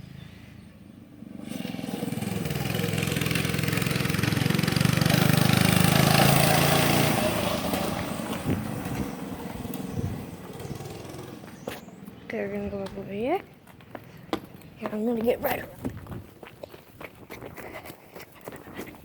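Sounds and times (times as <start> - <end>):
dirt bike engine revving: 1.1 - 11.7.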